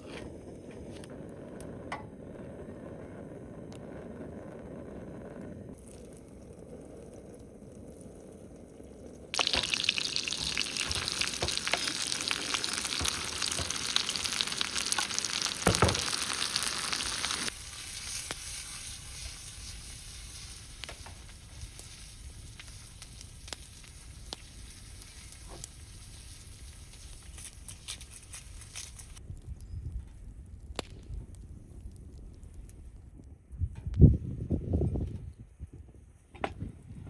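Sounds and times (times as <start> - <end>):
food sizzling in a pan: 9.3 - 29.2.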